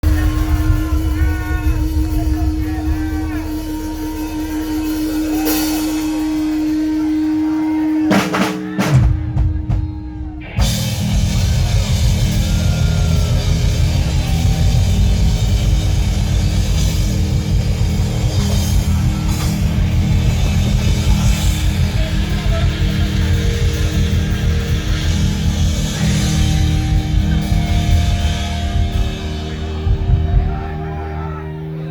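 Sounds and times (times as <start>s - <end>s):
live rock band playing: 0.0s - 31.9s
drum hits: 8.1s - 31.1s.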